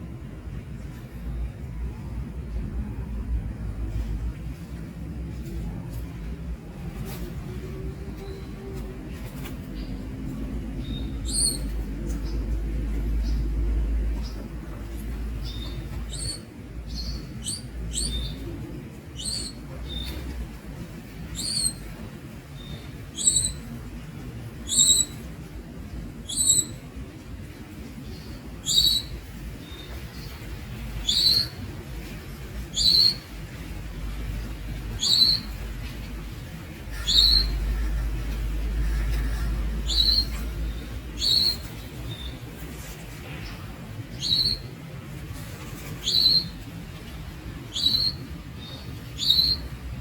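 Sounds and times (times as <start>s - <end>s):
low rumble: 0.0s - 28.5s
young bird chirping: 10.8s - 12.5s, 15.4s - 18.5s, 19.2s - 20.3s, 21.3s - 21.9s, 22.6s - 23.7s, 24.7s - 25.2s, 26.3s - 26.8s, 28.6s - 29.9s, 35.0s - 35.6s, 36.9s - 38.0s, 38.8s - 42.4s, 44.1s - 44.7s, 46.0s - 46.6s, 47.7s - 49.7s.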